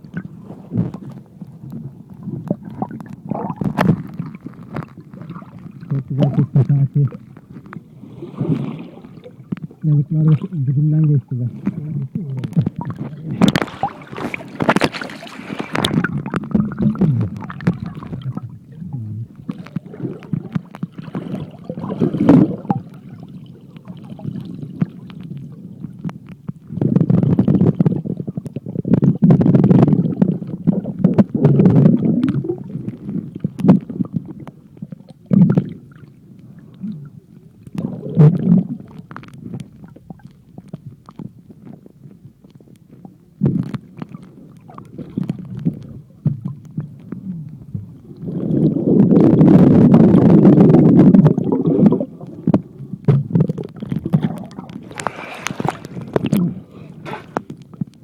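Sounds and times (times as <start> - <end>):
water moving against pouch: 12.4 - 23.0, 53.4 - 58.0.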